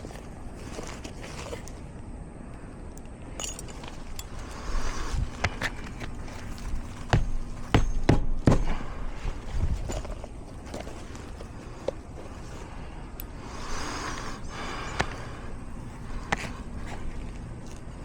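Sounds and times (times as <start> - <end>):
scuffing and rustling on roof: 0.0 - 2.0, 3.6 - 13.0, 14.0 - 18.0
hammer knocking nails: 7.1 - 8.8.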